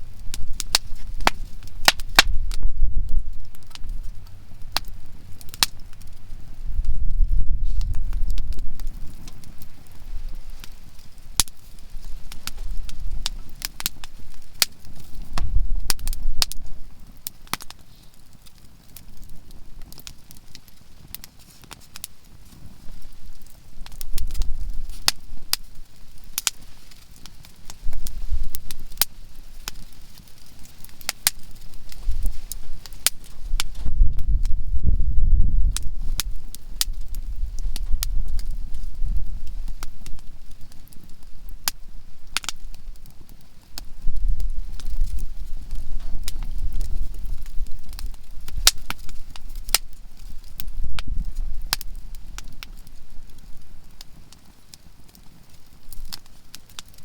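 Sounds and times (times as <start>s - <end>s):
low rumble: 0.0s - 10.5s, 15.1s - 16.9s
campfire crackling and popping: 0.0s - 57.0s.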